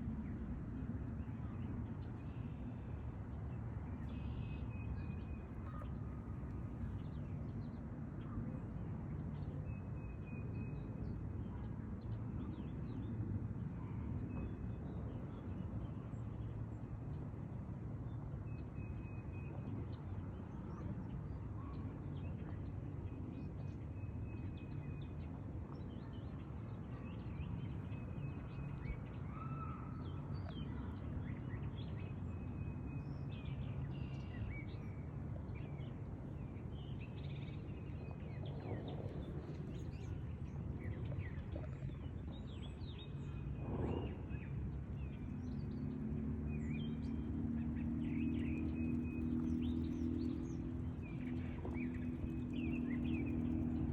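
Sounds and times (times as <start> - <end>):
low rumble: 37.5 - 45.7.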